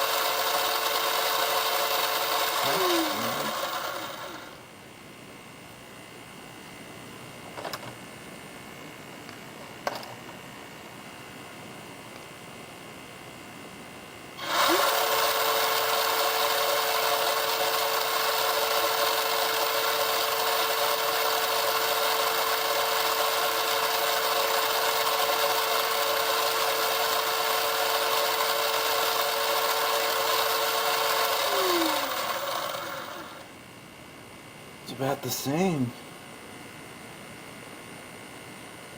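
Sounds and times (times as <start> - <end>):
electric motor whine with gear noise: 0.0 - 4.6, 14.4 - 33.6.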